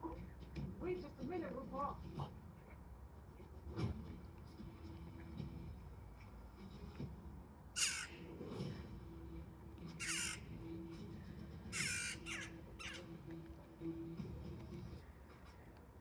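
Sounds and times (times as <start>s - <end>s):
jackdaw calling: 7.8s - 8.3s, 9.9s - 10.9s, 11.6s - 13.2s.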